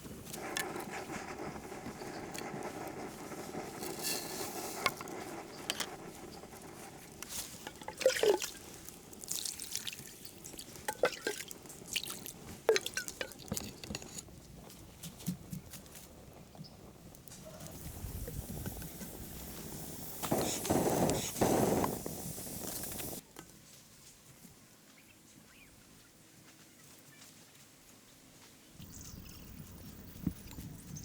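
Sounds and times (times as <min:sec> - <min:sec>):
water dripping and splashing: 0:07.2 - 0:13.7
faint steady hiss: 0:17.3 - 0:31.0.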